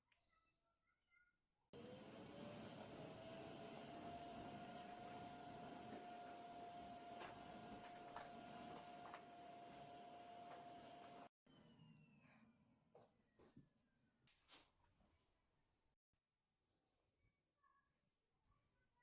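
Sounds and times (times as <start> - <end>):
vacuum cleaner motor whine: 1.8 - 12.1.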